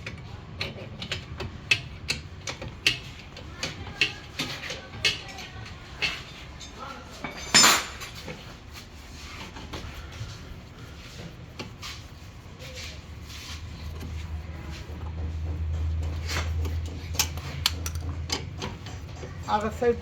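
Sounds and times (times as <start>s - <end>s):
metal tools clinking: 6.0s - 8.4s.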